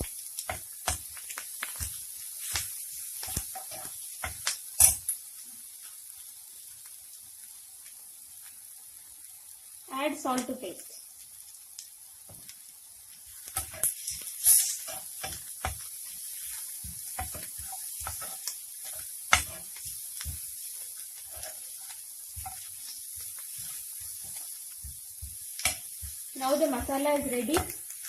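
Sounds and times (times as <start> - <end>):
spatula scraping and knocking pan: 0.0 - 5.1, 13.3 - 28.0
vegetables sizzling in oil: 0.0 - 28.0.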